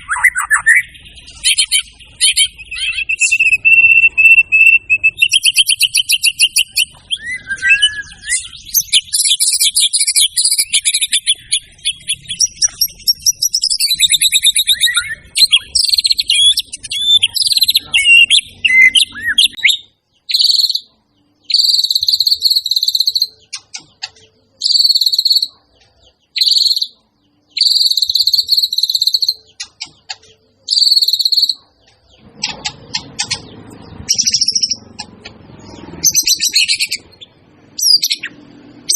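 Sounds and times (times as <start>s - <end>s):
bird ringing notes: 0.0s - 9.5s
bird singing whistles and trills: 0.0s - 38.9s.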